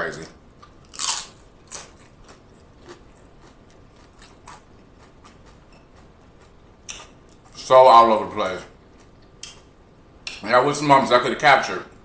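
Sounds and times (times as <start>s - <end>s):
chewing crunchy chips: 0.6s - 7.7s.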